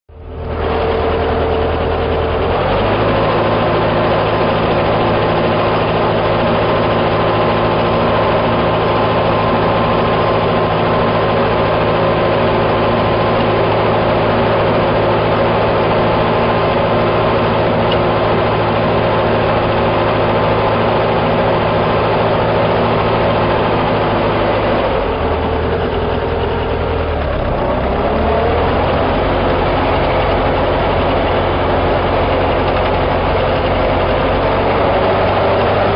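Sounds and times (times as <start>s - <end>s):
tractor diesel engine running: 0.1s - 35.9s.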